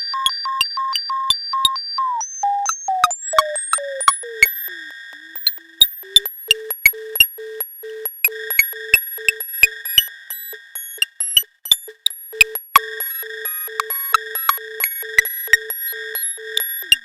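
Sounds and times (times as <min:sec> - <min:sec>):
synthesizer blips with clicks: 0:00.0 - 0:17.0.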